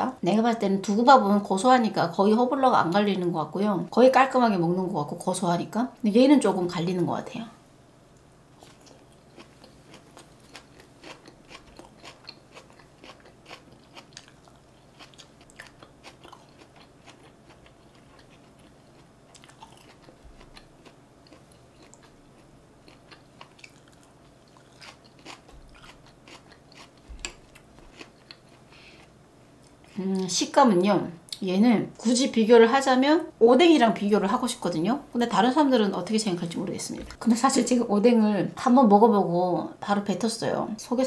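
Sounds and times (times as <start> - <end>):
wet chewing mouth sounds: 8.6 - 29.8.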